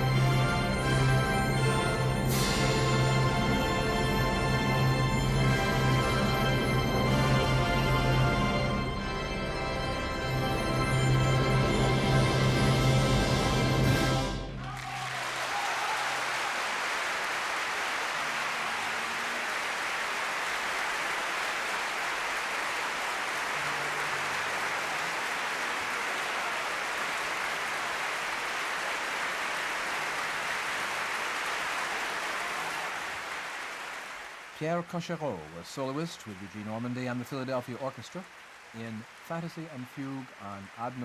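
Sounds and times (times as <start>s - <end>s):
audience applauding: 14.5s - 41.0s.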